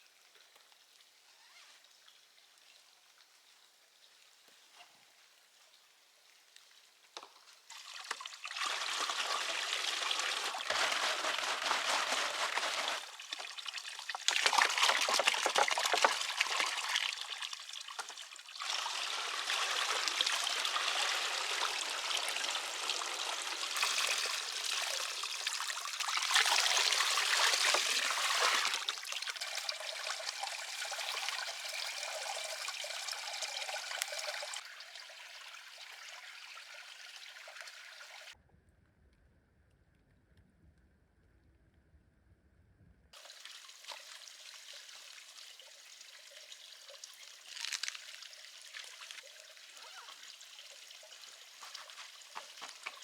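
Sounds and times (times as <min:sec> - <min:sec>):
water running and pouring: 0:06.8 - 0:38.4, 0:43.2 - 0:53.0.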